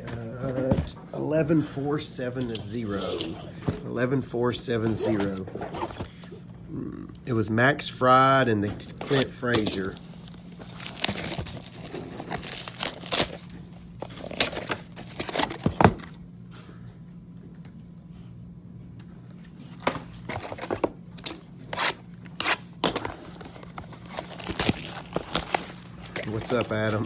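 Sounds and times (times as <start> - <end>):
cards being handled: 8.8 - 16.0, 19.6 - 27.0
wrappers crinkling and tearing: 9.0 - 15.8, 21.8 - 27.0.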